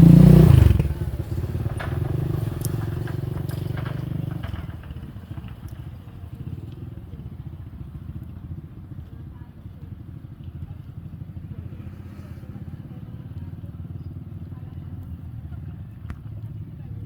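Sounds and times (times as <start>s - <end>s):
engine humming: 0.0s - 17.0s
faint clicks: 2.6s - 4.7s.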